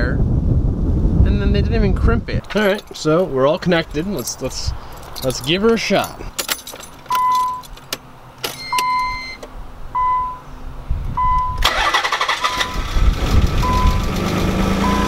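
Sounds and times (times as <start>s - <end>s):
car warning chime beeping: 7.1s - 7.7s, 8.5s - 9.4s, 10.0s - 10.5s, 11.2s - 12.9s, 13.6s - 14.1s
car engine cranking and running: 11.2s - 15.0s.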